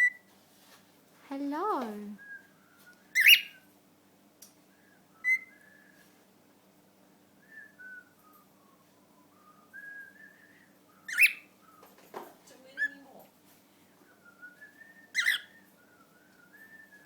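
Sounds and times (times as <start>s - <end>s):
cockatiel whistling a tune: 2.2s - 3.7s, 4.8s - 6.2s, 7.4s - 12.0s, 14.1s - 17.0s.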